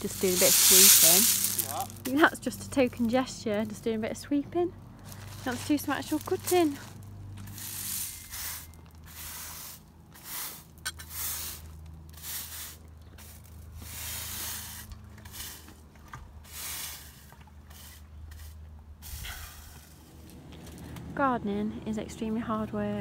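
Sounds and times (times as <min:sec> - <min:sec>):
shears snipping: 0:00.0 - 0:03.8
rustling leaves and stems: 0:00.0 - 0:03.9, 0:04.9 - 0:20.9.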